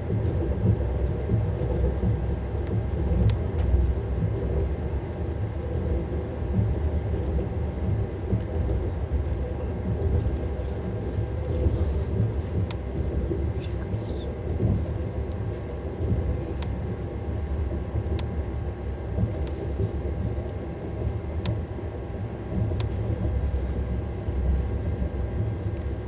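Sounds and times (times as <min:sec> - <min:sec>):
faint sharp clicks: 0:18.1 - 0:18.3.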